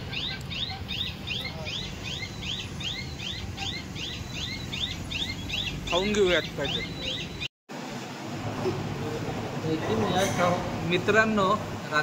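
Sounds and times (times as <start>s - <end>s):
bird chirping: 0.0s - 7.5s.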